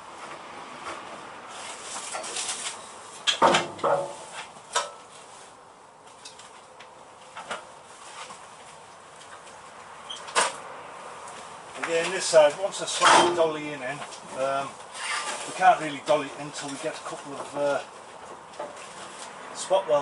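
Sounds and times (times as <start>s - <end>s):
metallic knocks and clanks: 3.2s - 5.0s.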